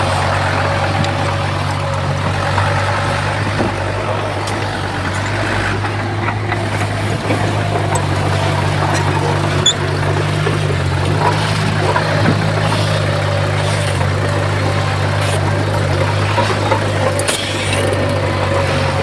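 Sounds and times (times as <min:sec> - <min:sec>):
heavy diesel machinery running: 0:00.0 - 0:19.0.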